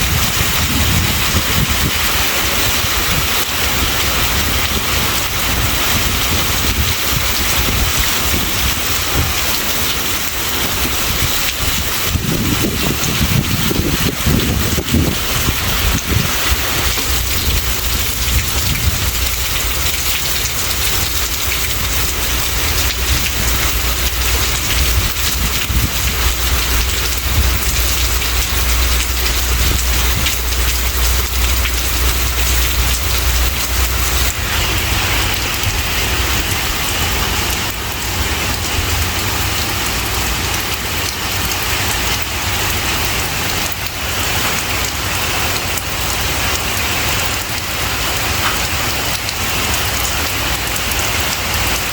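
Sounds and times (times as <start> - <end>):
heavy rain falling: 0.0 - 51.9
low rumble: 12.2 - 39.6.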